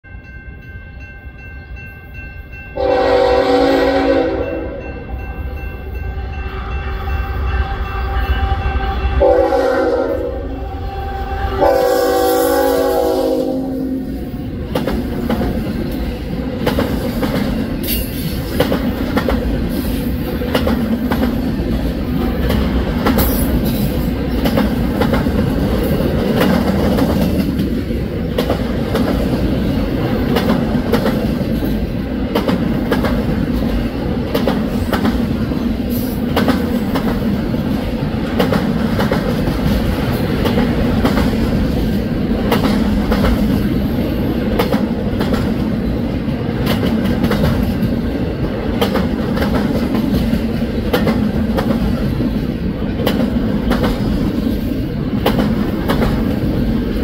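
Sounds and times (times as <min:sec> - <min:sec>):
freight train rumbling by: 0:00.0 - 0:57.0
locomotive horn blasts: 0:02.8 - 0:05.0, 0:06.4 - 0:14.2.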